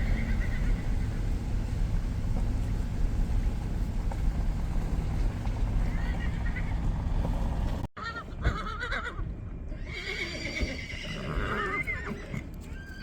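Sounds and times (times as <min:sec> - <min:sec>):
horses whinnying: 0:00.0 - 0:00.8, 0:08.0 - 0:13.0
low vehicle rumble: 0:00.0 - 0:09.9.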